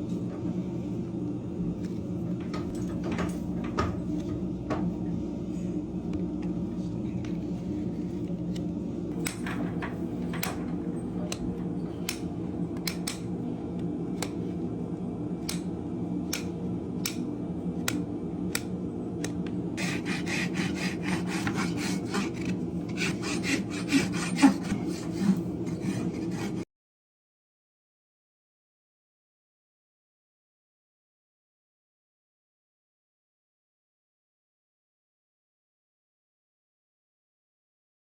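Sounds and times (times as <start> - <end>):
rasp filing a hoof: 19.8 - 26.6.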